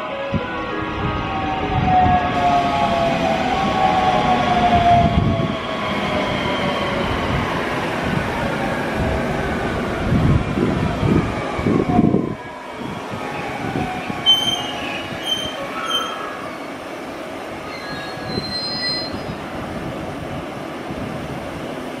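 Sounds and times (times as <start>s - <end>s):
train braking: 12.9s - 16.9s, 17.6s - 19.5s
high-pitched brake squeals: 14.2s - 16.8s, 17.7s - 19.4s.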